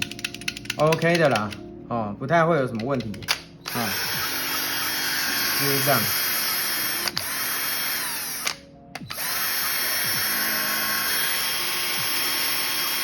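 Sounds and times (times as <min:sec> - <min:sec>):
electric drill whining: 0:03.7 - 0:13.0.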